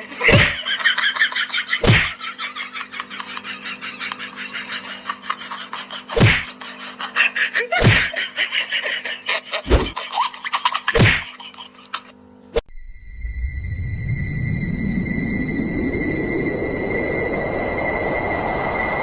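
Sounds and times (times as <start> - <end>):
heavy thumps: 1.8 - 2.1, 9.7 - 10.0.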